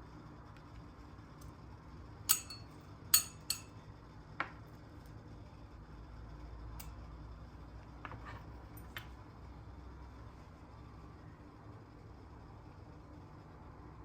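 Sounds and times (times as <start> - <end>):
kitchenware clinking: 2.3 - 3.7.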